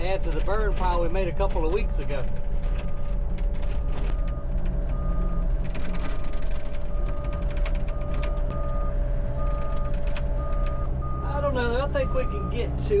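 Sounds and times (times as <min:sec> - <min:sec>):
tracks clanking and rattling: 0:00.0 - 0:11.9
diesel engine running: 0:00.0 - 0:13.0
travel alarm beeping: 0:03.8 - 0:12.6.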